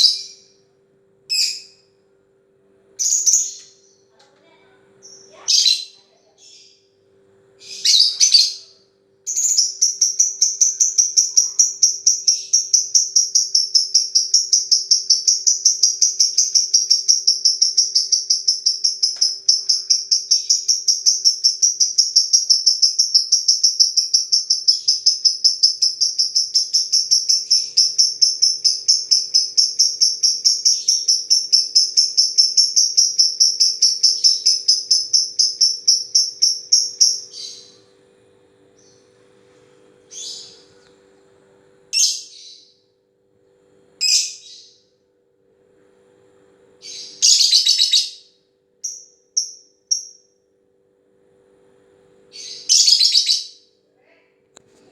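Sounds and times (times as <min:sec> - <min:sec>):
lovebird singing rapid chirps: 0:00.0 - 0:00.5, 0:07.6 - 0:37.8, 0:46.8 - 0:50.3, 0:52.3 - 0:53.7.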